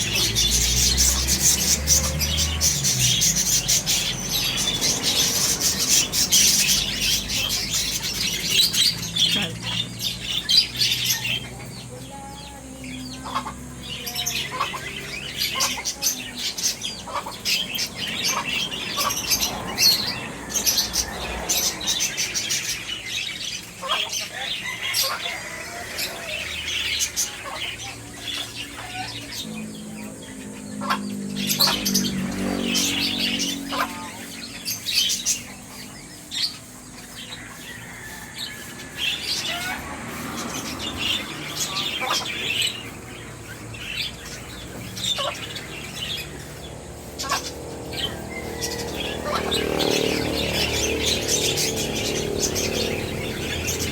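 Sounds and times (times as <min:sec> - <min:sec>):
birds chirping and squeaking: 0:00.0 - 0:53.9.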